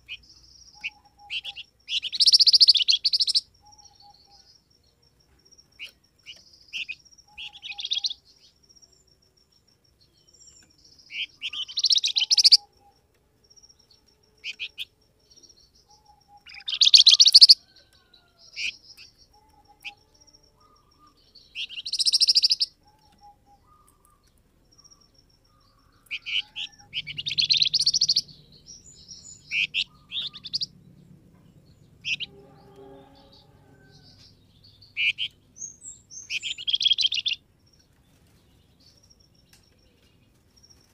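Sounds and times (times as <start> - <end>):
songbird chirps and song phrases: 0.0 - 40.9
thin high bird trill: 5.7 - 8.6, 15.5 - 30.8, 31.8 - 40.9.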